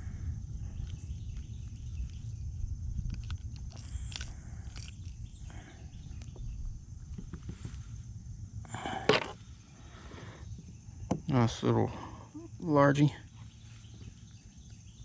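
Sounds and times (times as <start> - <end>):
wind rumble on microphone: 0.0 - 11.4.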